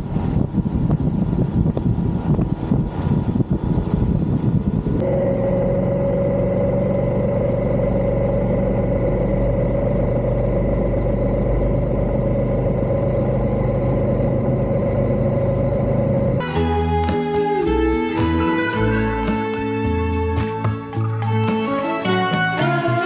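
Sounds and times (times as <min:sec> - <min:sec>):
motorcycle engine running: 0:00.0 - 0:16.4.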